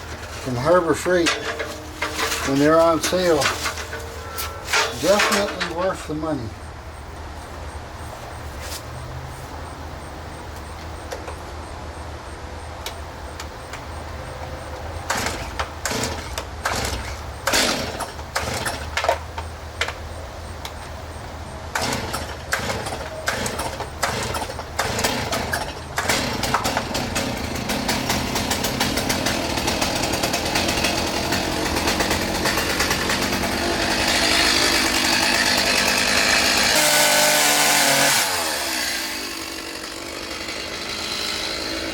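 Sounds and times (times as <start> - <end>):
chainsaw cutting wood: 0.0 - 6.4, 15.1 - 19.3, 21.7 - 41.9
chainsaw idling: 0.0 - 6.7, 15.0 - 41.9.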